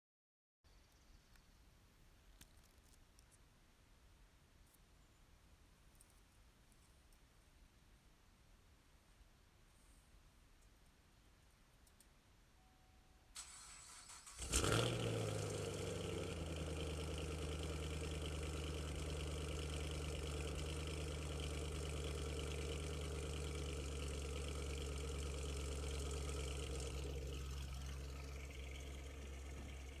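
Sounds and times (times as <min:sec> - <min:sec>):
engine starting and idling: 0:13.4 - 0:30.0.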